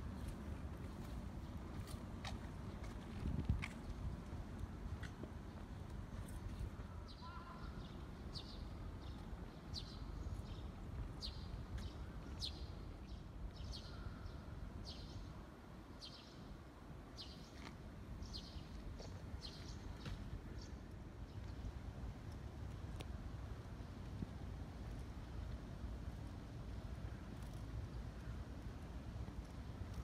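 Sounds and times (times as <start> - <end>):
low outdoor background noise: 0.0 - 30.0
songbird calling: 7.1 - 8.0.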